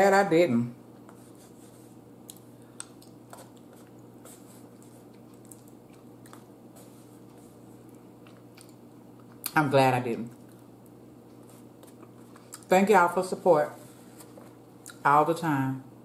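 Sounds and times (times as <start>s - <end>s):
faint chewing: 2.2s - 9.6s, 10.3s - 12.7s.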